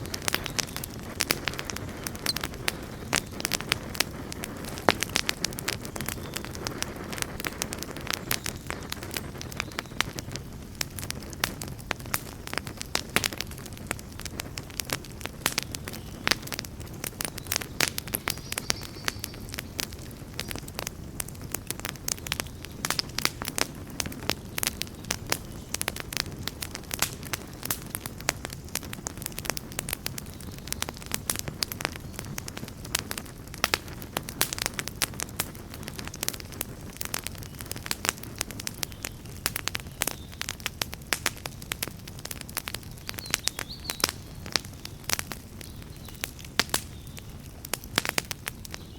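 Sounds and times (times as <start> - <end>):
campfire crackling and popping: 0.0 - 48.9
low rush of flame: 0.0 - 48.9.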